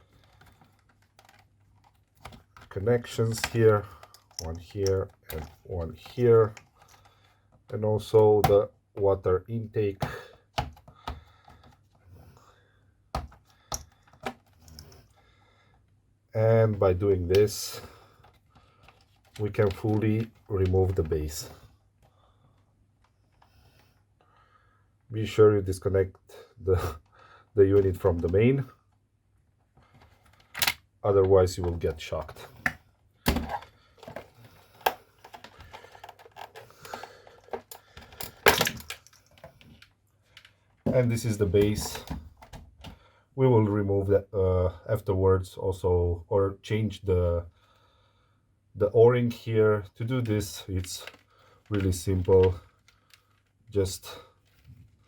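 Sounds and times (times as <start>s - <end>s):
plastic parts clicking and clattering: 0.0s - 8.7s, 9.9s - 12.0s, 13.1s - 15.2s, 17.2s - 22.1s, 29.8s - 43.0s, 50.2s - 55.0s
sharp plastic clicks: 30.3s - 30.9s.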